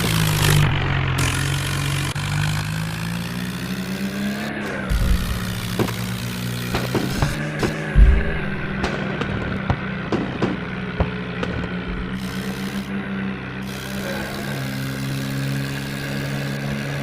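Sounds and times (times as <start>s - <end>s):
tractor diesel engine running: 0.0s - 17.0s
short low thumps: 4.9s - 12.5s.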